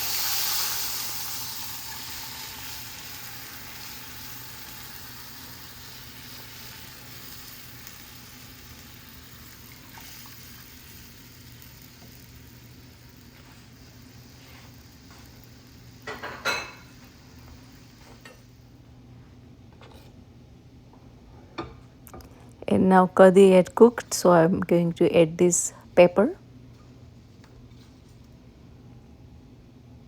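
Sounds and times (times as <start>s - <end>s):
spices sizzling in hot oil: 0.0s - 18.7s.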